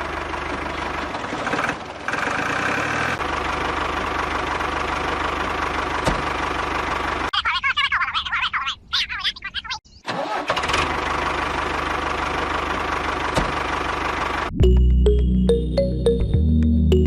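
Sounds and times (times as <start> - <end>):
engine running with regular beat: 3.2 - 7.3, 11.4 - 17.0.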